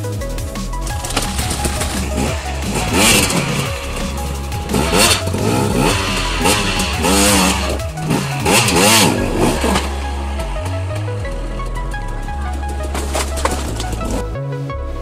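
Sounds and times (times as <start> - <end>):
dirt bike engine revving: 0.0 - 14.4
background music with bass: 0.0 - 15.0.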